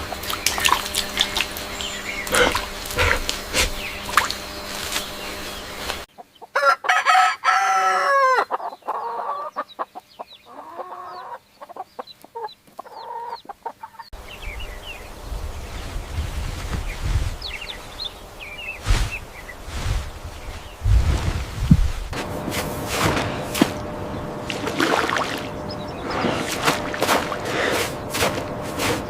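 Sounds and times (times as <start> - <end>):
chickens clucking: 0.0 - 7.2, 8.0 - 21.9, 23.0 - 29.0
rooster crowing: 6.6 - 8.5
low rumbling noise: 14.2 - 29.0.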